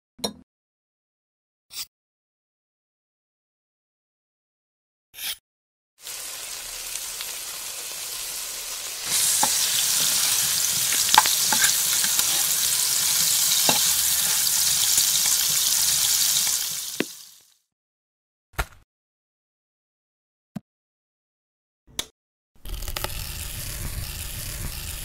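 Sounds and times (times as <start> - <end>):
frying pan sizzling: 6.0 - 17.6, 22.7 - 25.0
metal spatula clicking on pan: 9.3 - 12.4.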